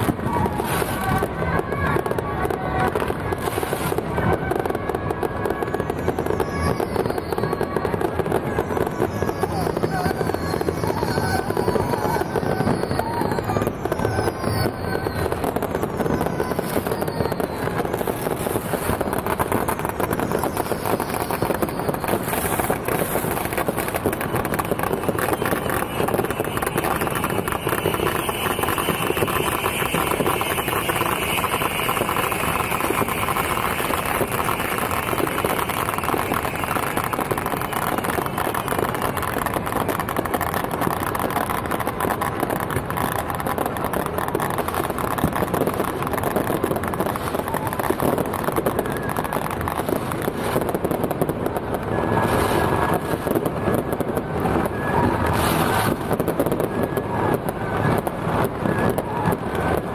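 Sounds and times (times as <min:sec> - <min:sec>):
falling fireworks whistles: 0:00.0 - 0:59.9
firecrackers crackling: 0:00.0 - 0:59.9
steady high tone: 0:05.8 - 0:39.8.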